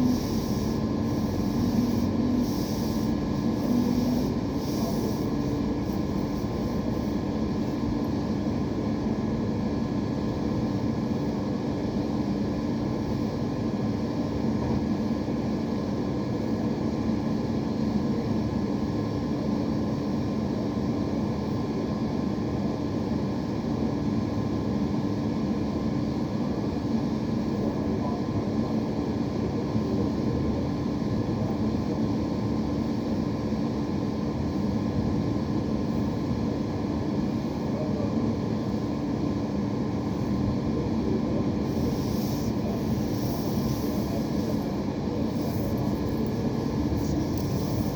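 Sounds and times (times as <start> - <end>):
mechanical hum with rushing: 0.0 - 15.4, 38.7 - 47.9.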